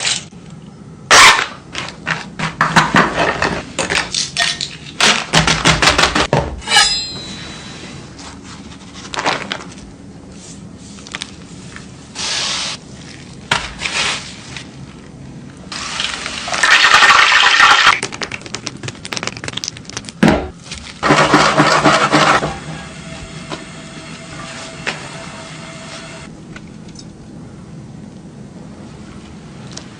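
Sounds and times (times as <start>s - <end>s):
kitchen knocks and clatters: 1.8s - 7.3s, 20.2s - 22.7s
faint steady hum: 22.8s - 29.9s.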